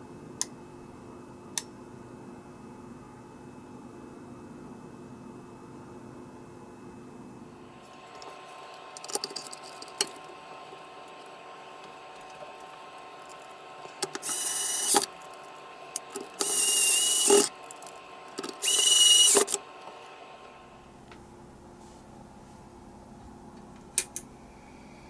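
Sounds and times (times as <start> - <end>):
power tool motor whirring: 14.1 - 15.1, 16.0 - 19.6.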